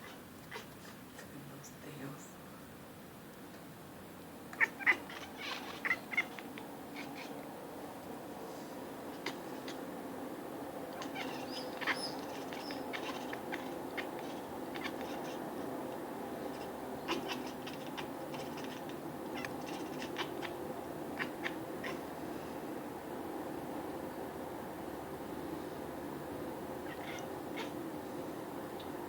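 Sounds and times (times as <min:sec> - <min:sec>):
low background hum: 0:00.0 - 0:29.0
small birds chirping: 0:10.9 - 0:15.5.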